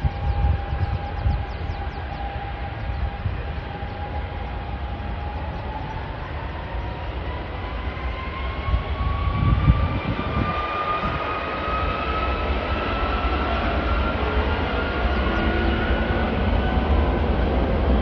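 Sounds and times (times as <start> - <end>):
jet engine whine and rumble: 0.0 - 18.0.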